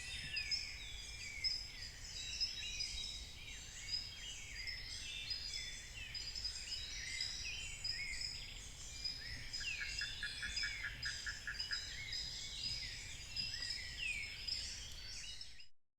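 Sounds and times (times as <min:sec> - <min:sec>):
birds singing: 0:00.0 - 0:15.7.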